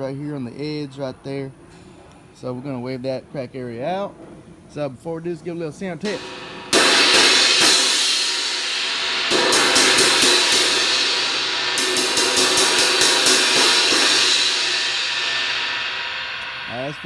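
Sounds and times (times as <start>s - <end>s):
crash cymbal struck and ringing: 6.1s - 17.0s.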